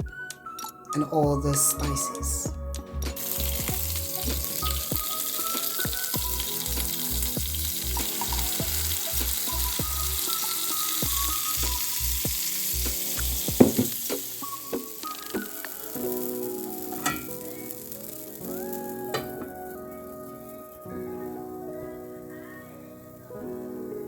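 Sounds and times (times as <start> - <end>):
background music with bass: 0.0 - 15.5
batter sizzling in a pan: 3.2 - 21.0.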